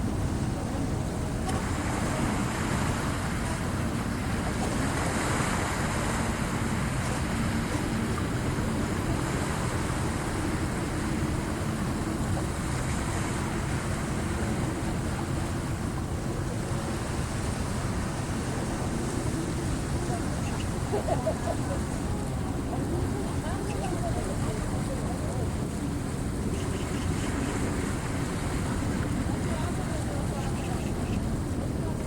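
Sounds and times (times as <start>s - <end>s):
waves washing against shore: 0.0s - 32.0s.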